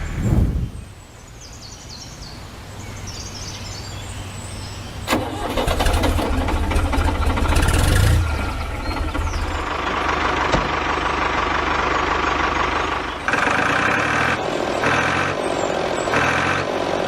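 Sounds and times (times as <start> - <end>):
birds chirping faintly: 0.0 - 5.1
small engine starting and running: 5.1 - 17.0.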